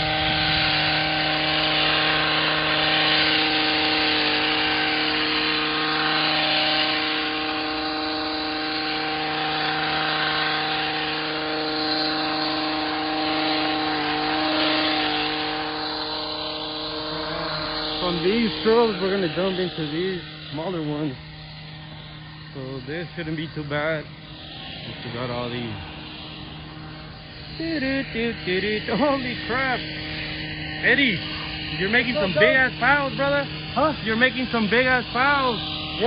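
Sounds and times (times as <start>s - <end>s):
hedge trimmer engine running: 0.0s - 36.0s.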